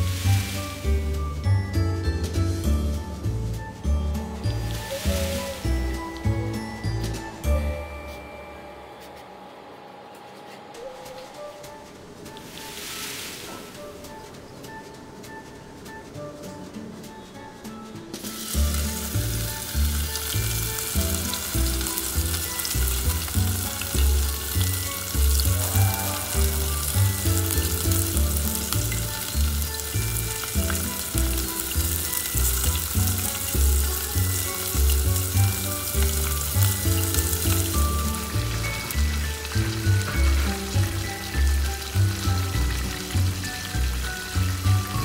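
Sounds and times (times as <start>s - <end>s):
fish sizzling in hot oil: 0.0s - 1.4s, 2.3s - 7.4s, 18.2s - 45.0s
background music: 0.0s - 45.0s.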